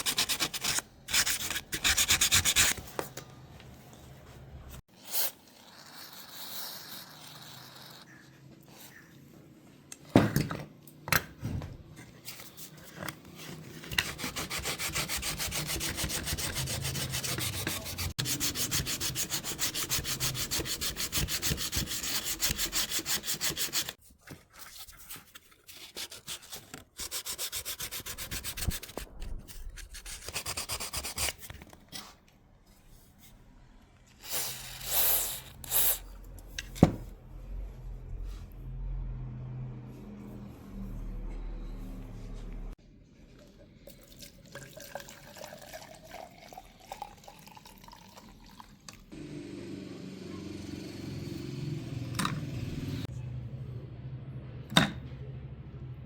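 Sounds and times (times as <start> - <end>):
wood being sanded by hand: 14.0 - 24.0.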